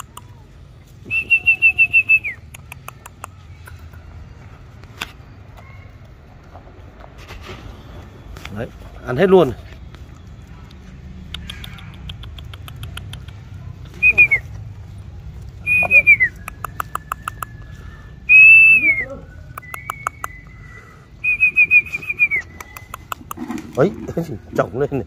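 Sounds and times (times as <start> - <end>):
songbird whistled phrases: 1.0 - 2.6, 14.0 - 14.5, 15.6 - 23.2
thin bird whistle notes: 1.0 - 3.7, 14.0 - 14.5, 15.6 - 23.4
rapid bird clicks: 2.2 - 4.0, 11.2 - 13.6, 16.4 - 17.7, 19.6 - 20.5, 22.3 - 23.5.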